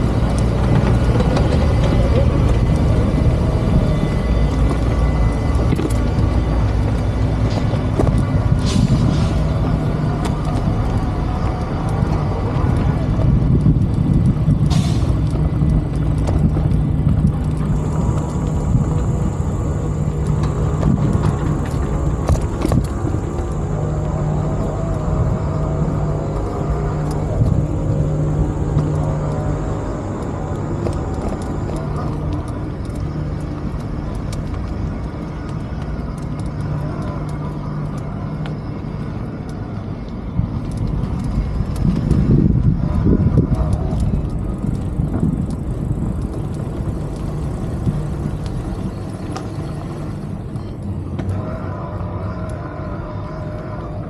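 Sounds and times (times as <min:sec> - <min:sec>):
road traffic hum: 0:00.0 - 0:54.0
vehicle passing: 0:40.8 - 0:54.0.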